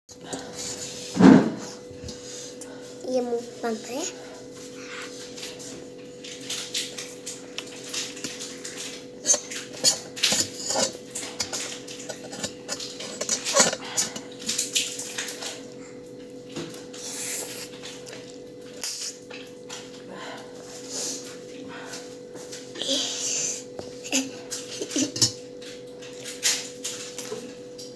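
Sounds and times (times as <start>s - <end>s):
faint steady hum: 0.1s - 27.9s
slurping and chewing noodles: 16.7s - 19.8s.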